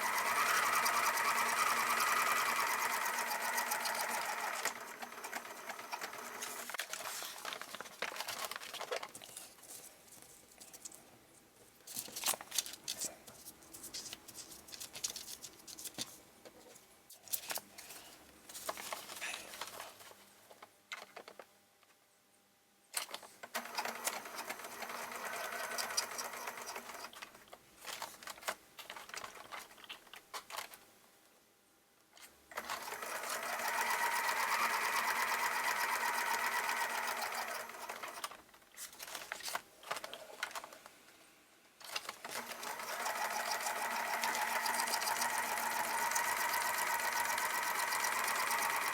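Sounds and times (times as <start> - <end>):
sewing machine stitching paper: 0.0 - 8.6, 23.0 - 27.3, 32.5 - 38.4, 41.8 - 48.9
paper handling: 6.3 - 11.0, 11.8 - 20.2.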